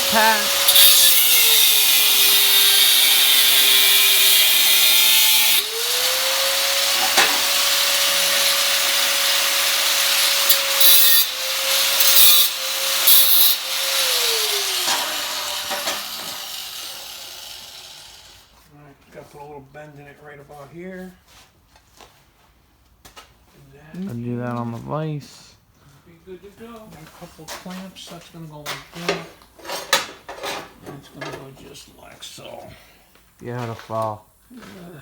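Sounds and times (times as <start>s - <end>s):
angle grinder cutting steel: 0.0s - 18.5s
grinder winding down: 0.0s - 18.5s.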